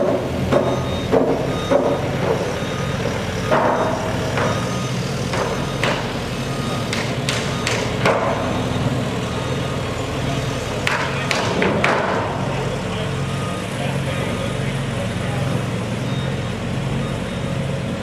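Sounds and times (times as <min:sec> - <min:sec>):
construction machinery engine drone: 0:00.0 - 0:18.0
reversing alarm beeping: 0:00.0 - 0:18.0
sharp knocks: 0:05.3 - 0:06.1, 0:06.9 - 0:08.5, 0:10.8 - 0:12.3.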